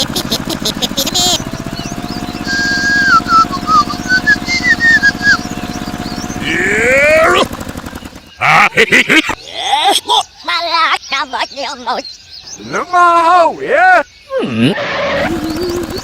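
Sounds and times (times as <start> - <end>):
small engine chugging: 0.0 - 14.1, 15.0 - 16.0
whistle-like tones: 2.2 - 5.5.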